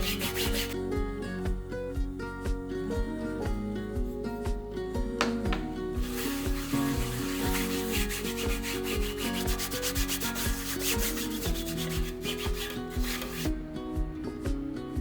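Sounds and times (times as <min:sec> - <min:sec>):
quick rubbing strokes: 0:00.0 - 0:00.8, 0:06.0 - 0:13.5
background music: 0:00.0 - 0:15.0.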